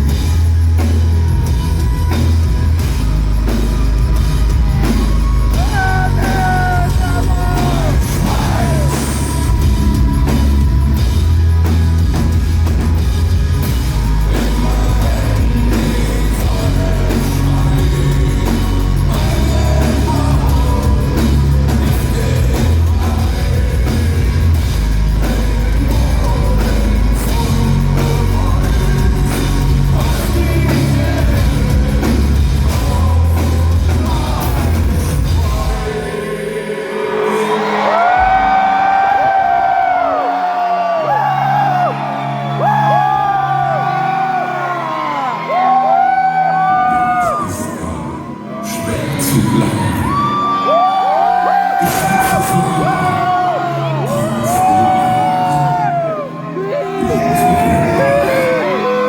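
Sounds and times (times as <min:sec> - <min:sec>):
pounding drums: 0:00.0 - 0:36.2
heavy metal band playing live: 0:00.0 - 0:59.0
person singing: 0:04.4 - 0:11.8, 0:13.6 - 0:59.0.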